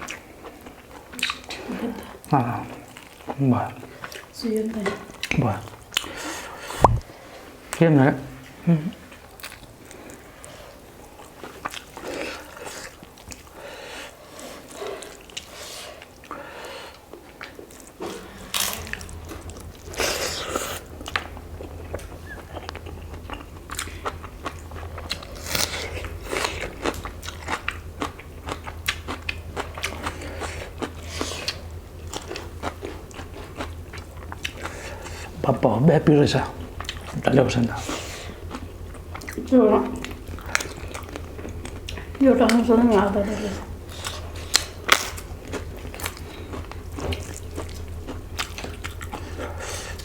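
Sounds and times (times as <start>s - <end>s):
low steady hum: 0.0s - 50.0s
people crunching and chewing food: 0.0s - 50.0s
mouth noises: 6.7s - 7.1s.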